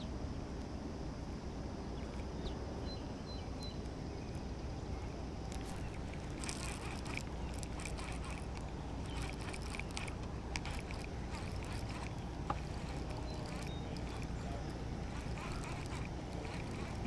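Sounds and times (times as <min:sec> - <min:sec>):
light clicks and ticks: 0:05.5 - 0:17.0.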